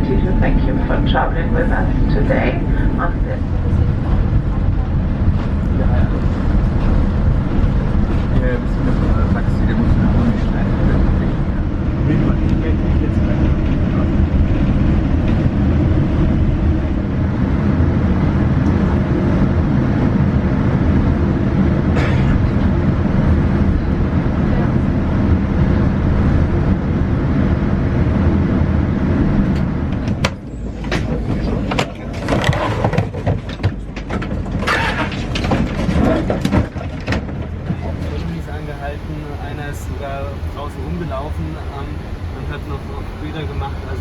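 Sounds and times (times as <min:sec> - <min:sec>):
voices: 0:00.0 - 0:07.1, 0:08.1 - 0:14.7, 0:30.3 - 0:44.0
vehicle interior rumble: 0:00.0 - 0:44.0
clicks and clatter: 0:29.5 - 0:37.5.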